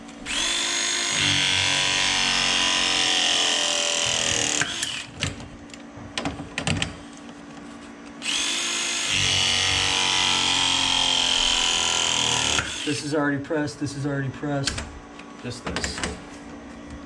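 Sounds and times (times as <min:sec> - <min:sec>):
press tool motor whining: 0:08.2 - 0:12.9.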